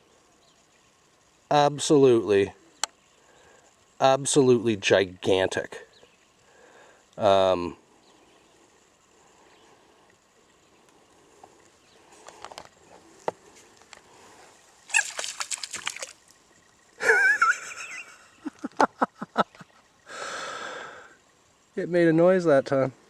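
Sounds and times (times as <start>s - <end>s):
bullfrogs calling: 0.0s - 23.0s.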